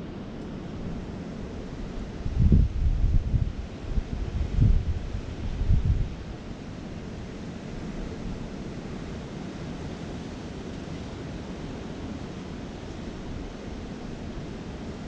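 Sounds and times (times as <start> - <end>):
wind buffeting microphone: 0.9 - 6.4.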